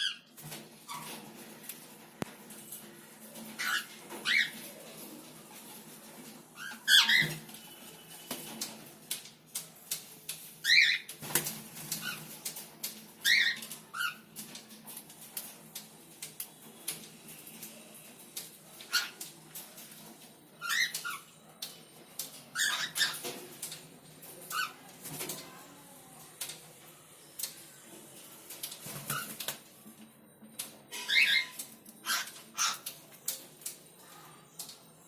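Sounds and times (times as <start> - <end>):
clicks and rustles: 0.4 - 26.7
cockatiels chirping: 3.6 - 4.6, 6.6 - 7.4, 10.6 - 11.1, 13.2 - 14.3, 18.8 - 19.3, 20.6 - 21.3, 22.6 - 23.3, 31.0 - 33.0.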